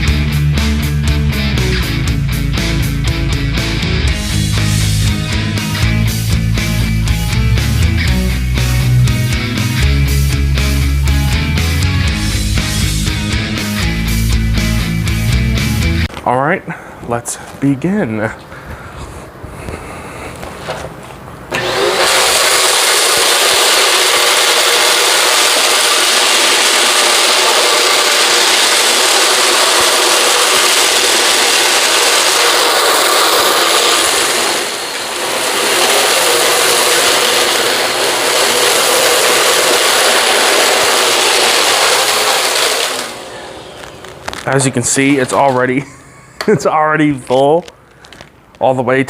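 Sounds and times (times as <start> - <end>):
vacuum cleaner running: 2.7 - 16.0, 21.5 - 46.6.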